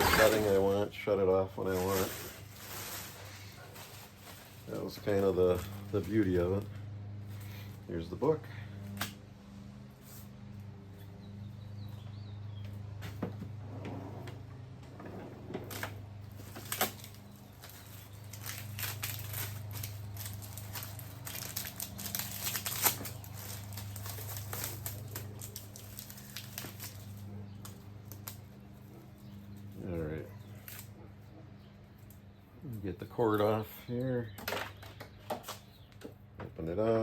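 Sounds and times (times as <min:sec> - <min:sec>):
packaging crinkling and rustling: 0:01.6 - 0:06.7, 0:15.7 - 0:29.6, 0:30.6 - 0:30.9.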